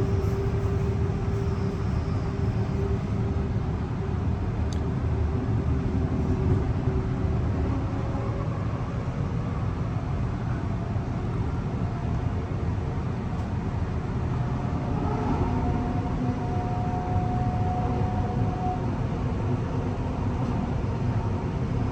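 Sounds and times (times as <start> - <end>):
electric train rumbling: 0.0 - 21.9.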